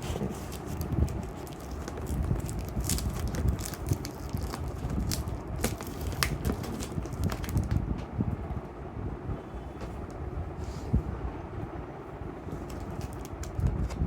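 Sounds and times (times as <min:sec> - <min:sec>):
low rumble of handling: 0:00.0 - 0:14.0
cardboard box crackling: 0:00.1 - 0:07.8
packing tape being cut: 0:00.5 - 0:07.7.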